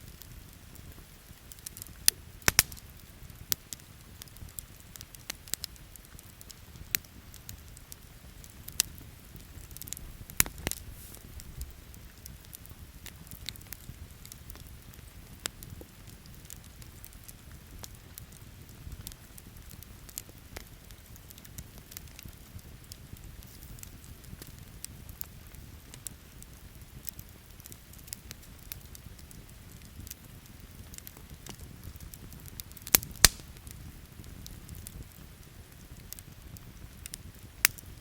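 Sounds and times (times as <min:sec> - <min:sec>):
campfire crackling and popping: 0:00.0 - 0:38.0.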